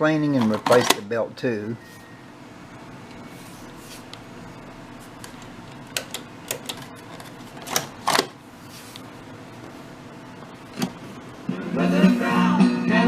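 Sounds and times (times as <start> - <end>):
faint steady hum: 0.0 - 13.0
stereo controls clicking and clunking: 5.2 - 8.4.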